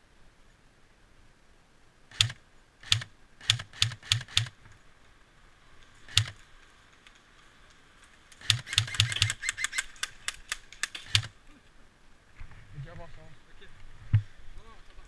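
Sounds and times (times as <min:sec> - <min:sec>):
airsoft gun shots: 0:08.4 - 0:09.6.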